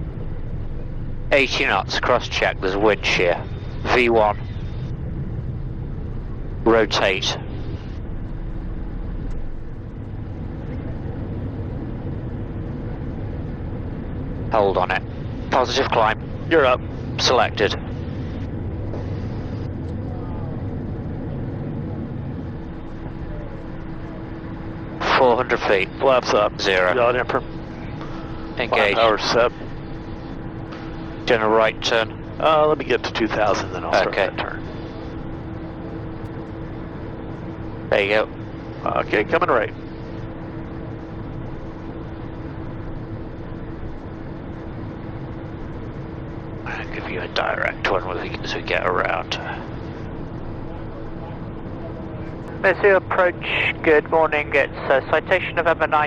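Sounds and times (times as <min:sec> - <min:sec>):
airflow rush: 0:00.0 - 0:55.7
faint steady hum: 0:00.0 - 0:56.0
jet engines at takeoff power: 0:00.0 - 0:56.0.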